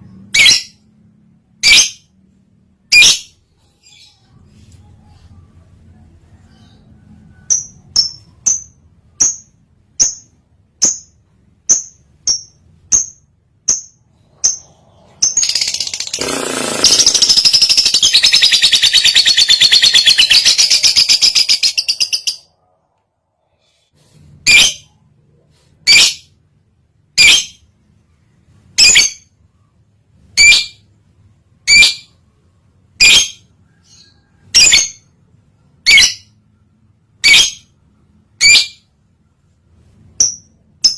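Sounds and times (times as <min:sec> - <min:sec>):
lovebird chirping and chattering: 0:07.4 - 0:22.5, 0:27.2 - 0:27.6, 0:28.8 - 0:29.3, 0:31.6 - 0:32.2, 0:33.0 - 0:35.1, 0:35.8 - 0:36.3, 0:37.2 - 0:37.8, 0:38.4 - 0:38.8.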